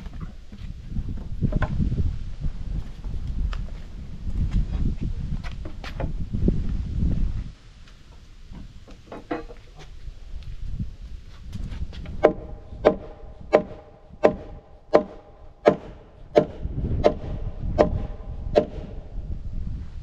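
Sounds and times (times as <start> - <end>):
mallet hammering on timber: 12.2 - 19.0.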